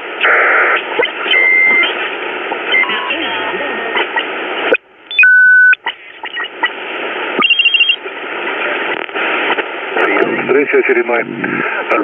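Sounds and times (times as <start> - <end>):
radio hiss: 0.0 - 4.8, 5.8 - 12.0
short high beeps: 7.4 - 8.0.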